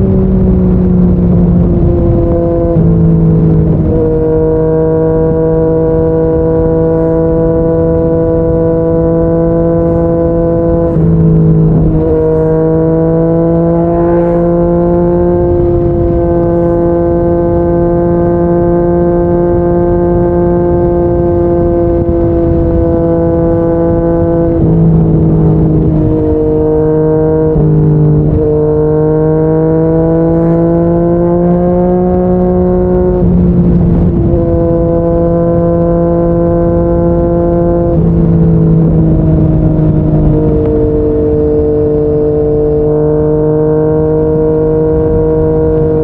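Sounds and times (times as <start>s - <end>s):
motorcycle engine cruising: 0.0s - 46.0s.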